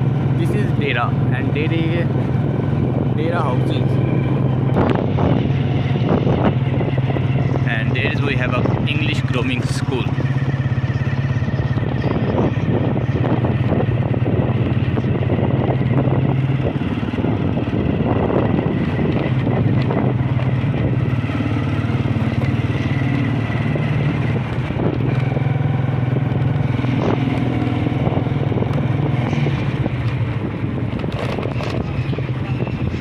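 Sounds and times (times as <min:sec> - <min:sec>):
motorcycle engine running: 0:00.0 - 0:33.0
road rumble: 0:00.0 - 0:33.0.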